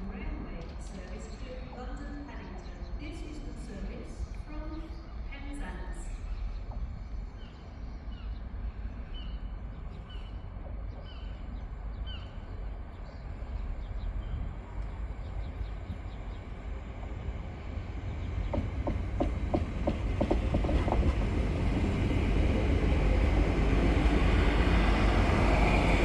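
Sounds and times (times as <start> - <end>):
train wheels clicking: 18.3 - 26.0.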